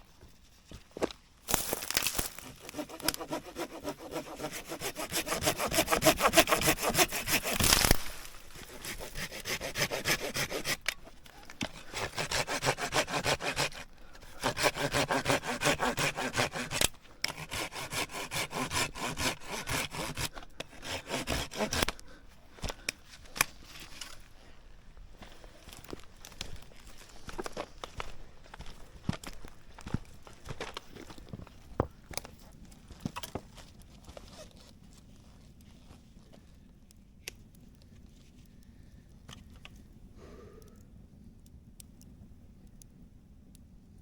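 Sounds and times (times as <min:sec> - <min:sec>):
hand saw cutting wood: 0:02.4 - 0:22.0.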